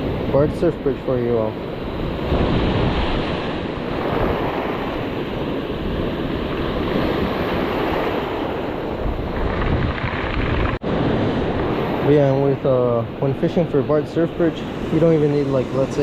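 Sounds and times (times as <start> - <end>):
wind buffeting the microphone: 0.0 - 13.6
ocean surf washing onto beach: 0.0 - 16.0.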